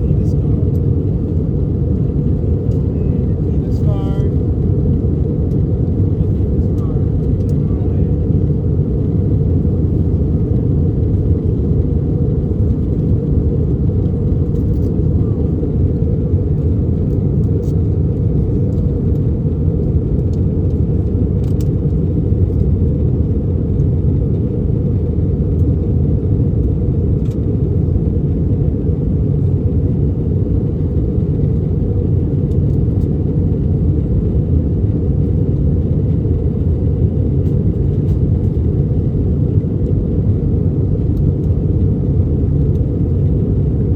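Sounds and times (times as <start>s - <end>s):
airliner engines rumbling in cabin: 0.0s - 43.9s.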